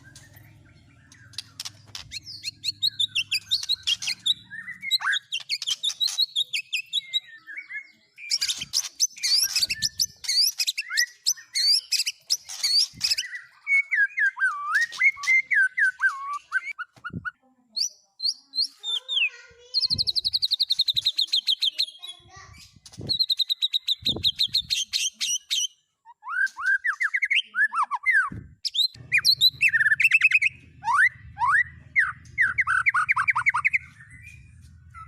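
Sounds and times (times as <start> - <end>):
fast bird trill: 0.0 - 7.3, 8.2 - 17.4, 26.3 - 35.0
songbird singing: 0.0 - 35.0.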